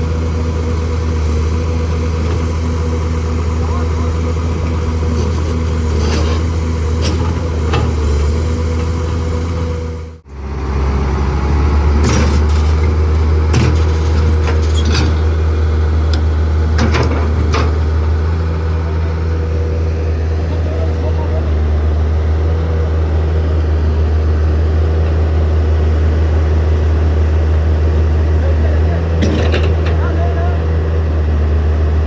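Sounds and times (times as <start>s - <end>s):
diesel engine running: 0.0s - 32.0s
metallic clanks: 5.0s - 8.1s, 29.2s - 30.1s.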